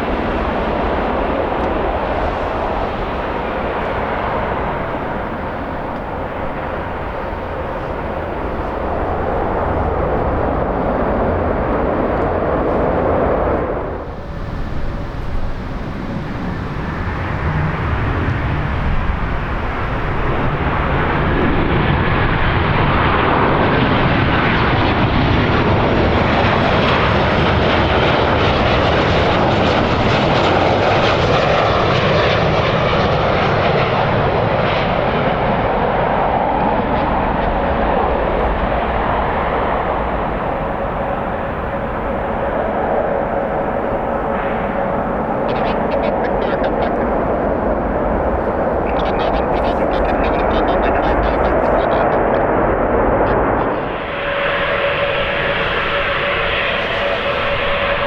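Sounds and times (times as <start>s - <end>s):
airliner engines running: 0.0s - 58.0s.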